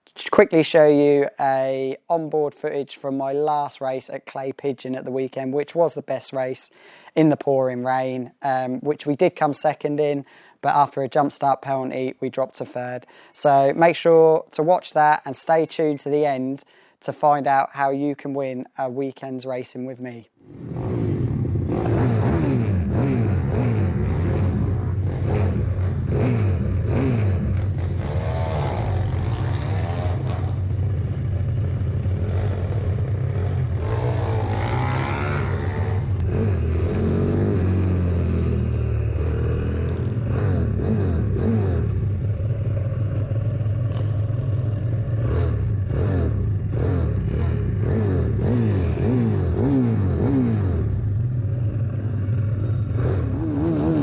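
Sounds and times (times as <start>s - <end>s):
motorbike engine revving: 20.4s - 54.0s.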